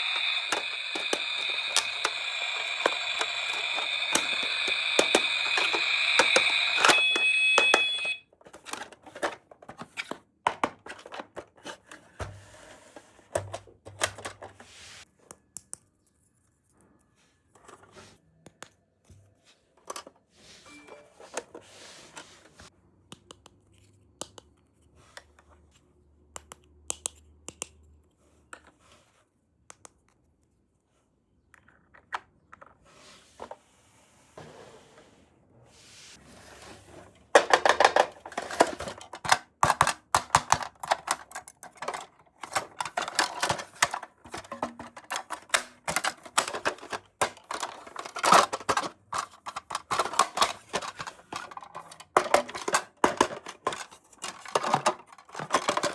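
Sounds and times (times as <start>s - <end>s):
plastic toy pieces clicking: 0.0s - 8.2s, 37.5s - 55.9s.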